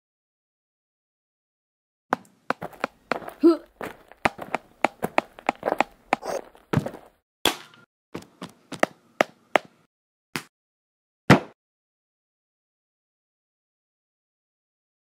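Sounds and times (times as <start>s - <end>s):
punch and strike hits: 11.3s - 11.6s.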